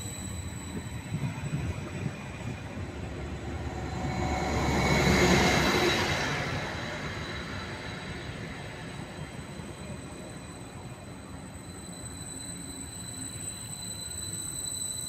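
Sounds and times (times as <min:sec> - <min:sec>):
train rolling past: 0:00.0 - 0:15.0.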